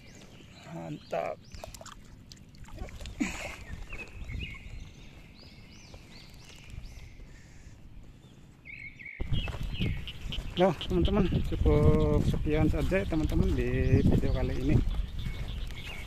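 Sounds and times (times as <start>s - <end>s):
small birds chirping: 0.0s - 16.0s
wind rumble on microphone: 2.6s - 7.4s, 8.0s - 16.0s
microphone handling noise: 9.2s - 16.0s.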